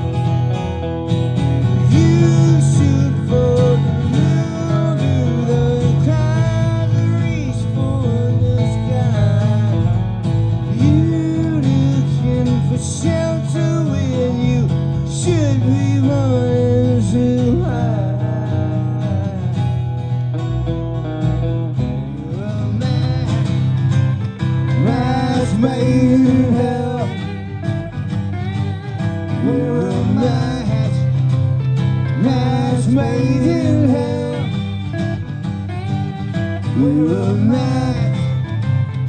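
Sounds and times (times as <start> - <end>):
acoustic guitars strumming chords: 0.0 - 39.0
sliding guitar melody: 0.0 - 39.0
live band music: 19.8 - 39.0.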